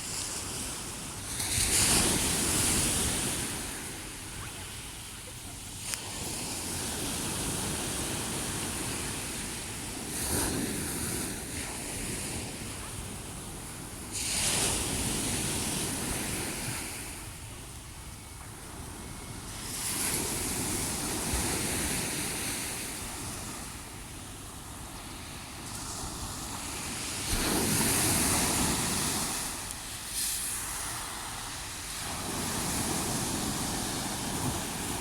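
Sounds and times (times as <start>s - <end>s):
sea waves breaking on shore: 0.0s - 35.0s.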